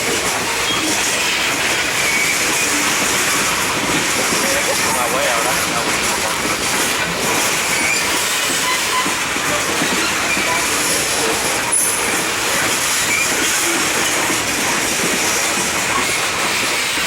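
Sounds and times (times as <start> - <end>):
train wheels rumbling and rattling: 0.0 - 17.0
wheel squeals: 2.0 - 3.7, 7.6 - 14.1.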